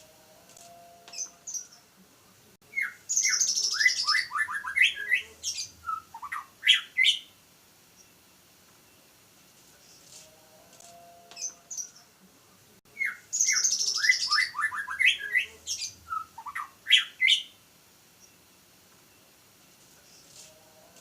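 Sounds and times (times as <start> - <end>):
bird singing whistled notes: 2.7 - 7.4, 12.9 - 17.6.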